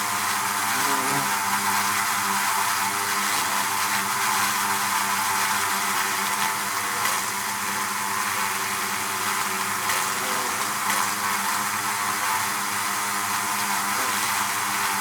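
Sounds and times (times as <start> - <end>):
bees buzzing: 0.4 - 4.6.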